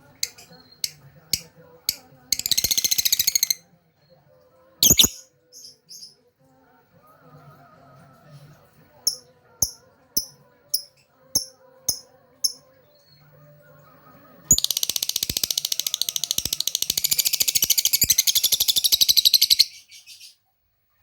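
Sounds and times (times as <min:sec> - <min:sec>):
lovebird chirping and trilling: 0:02.3 - 0:03.6, 0:04.8 - 0:06.1, 0:14.5 - 0:20.3.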